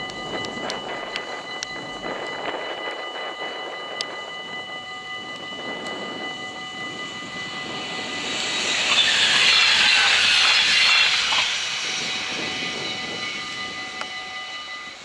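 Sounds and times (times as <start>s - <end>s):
crossing warning bells ringing: 0.0s - 15.0s
electric train rushing past: 0.0s - 15.0s
train wheel clacks: 7.6s - 14.2s.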